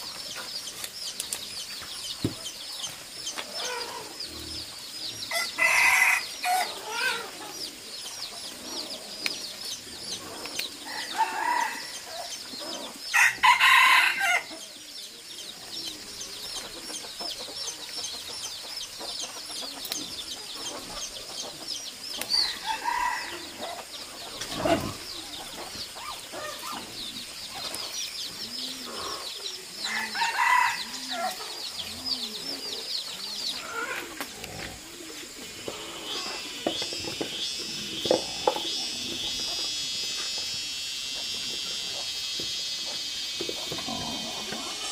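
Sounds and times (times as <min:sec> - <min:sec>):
continuous high chirping: 0:00.0 - 0:44.9
roosters crowing: 0:05.1 - 0:07.8, 0:10.1 - 0:14.6, 0:22.3 - 0:27.3, 0:28.4 - 0:32.9.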